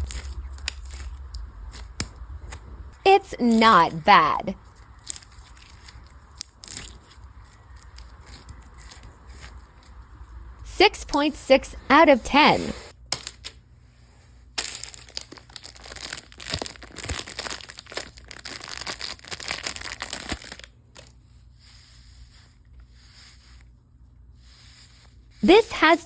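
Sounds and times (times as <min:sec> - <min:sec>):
plastic packaging crinkling and tearing: 0:00.0 - 0:02.0, 0:04.6 - 0:09.9, 0:14.6 - 0:21.1.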